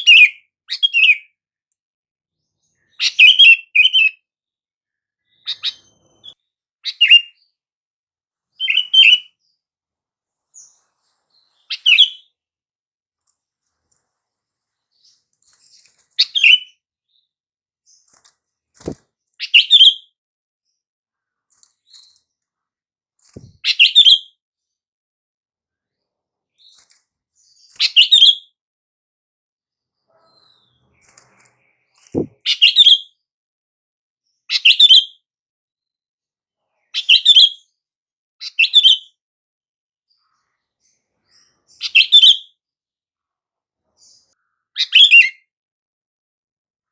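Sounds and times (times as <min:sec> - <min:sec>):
faint clicks: 0:13.2 - 0:14.1
bulbul chirpy calls: 0:32.1 - 0:32.7.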